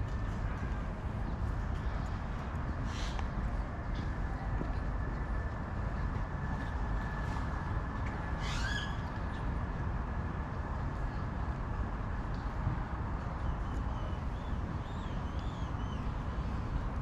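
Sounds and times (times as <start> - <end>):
distant traffic rumble: 0.0 - 17.0
rising bird call: 8.4 - 9.0.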